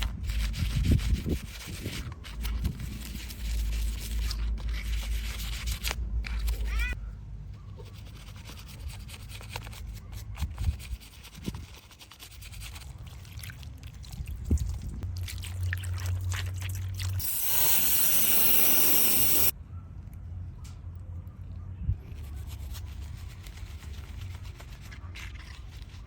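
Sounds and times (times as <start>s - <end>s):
water spray hiss: 17.2s - 19.5s.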